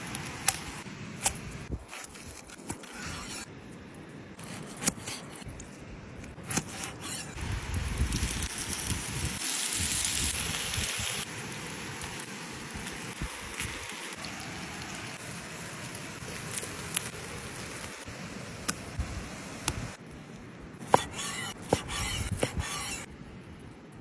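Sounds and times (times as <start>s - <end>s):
fire crackling: 0.0s - 23.1s
meat sizzling over fire: 7.0s - 18.7s.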